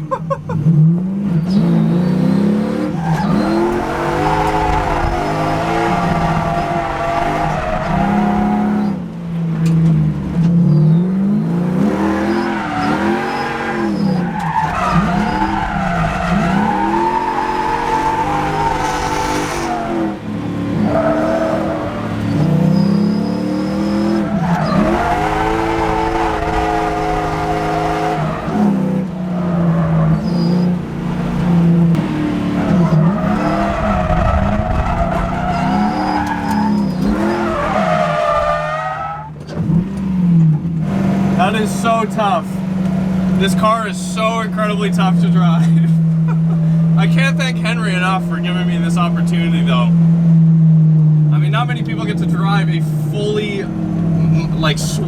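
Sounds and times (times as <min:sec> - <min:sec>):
car engine revving hard: 0:00.6 - 0:50.5, 0:51.3 - 0:55.0
tyres squealing: 0:12.0 - 0:20.2, 0:20.8 - 0:29.0, 0:32.6 - 0:39.6.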